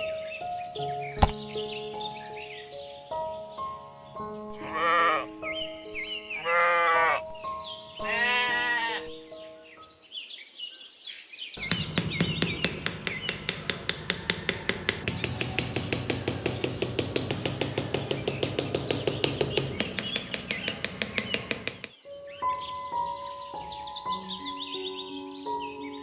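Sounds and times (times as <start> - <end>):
birds chirping: 0.0 - 26.0
fast even tapping: 11.6 - 21.9.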